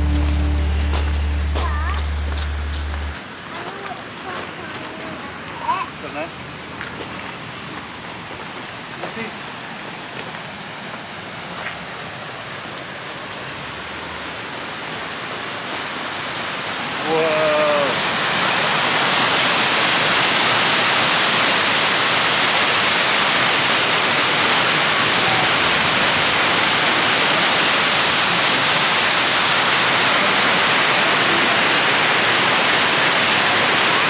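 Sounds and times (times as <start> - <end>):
white water rushing: 0.0 - 3.3, 12.9 - 34.0.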